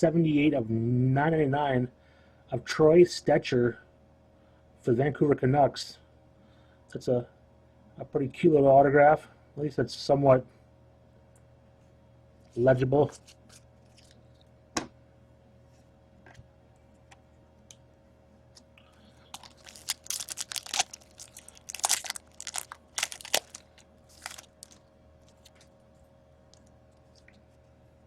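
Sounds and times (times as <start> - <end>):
foil wrapper crinkling and tearing: 13.1 - 14.5, 19.2 - 25.8.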